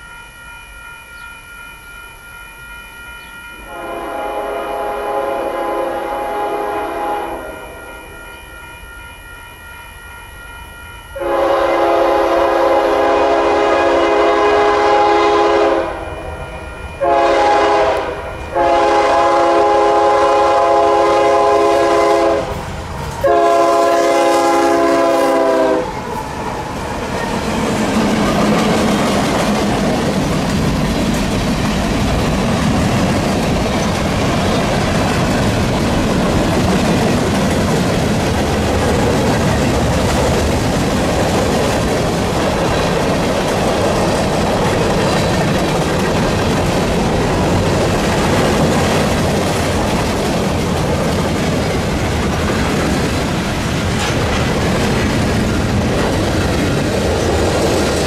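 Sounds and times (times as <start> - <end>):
locomotive air horn blasts: 3.7 - 7.8, 11.2 - 16.3, 17.0 - 22.6, 23.2 - 26.0
train wheels rumbling on rails: 11.2 - 58.0.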